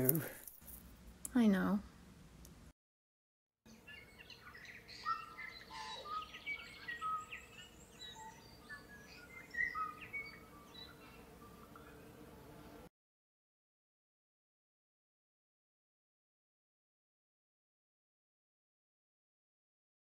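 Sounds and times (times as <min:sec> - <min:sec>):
faint steady background hum: 0:00.0 - 0:02.7, 0:03.7 - 0:12.9
birds chirping and singing: 0:03.7 - 0:12.8.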